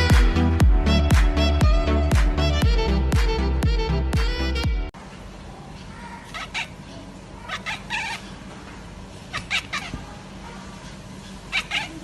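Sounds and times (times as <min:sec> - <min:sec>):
dance music with steady beat: 0:00.0 - 0:04.9.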